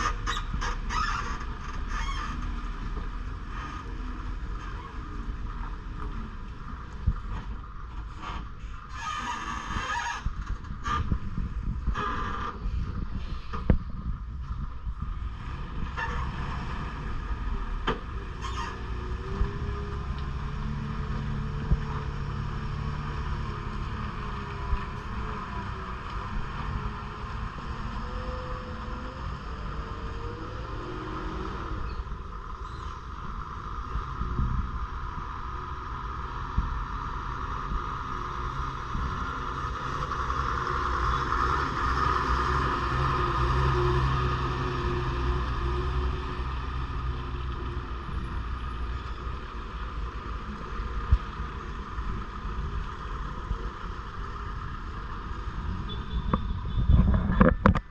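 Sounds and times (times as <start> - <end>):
lorry diesel engine labouring: 14.4 - 55.9.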